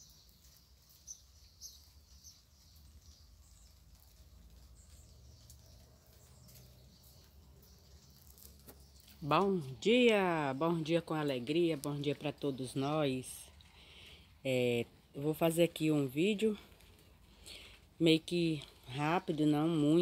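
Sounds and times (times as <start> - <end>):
faint bird chirps: 0.0 - 4.2.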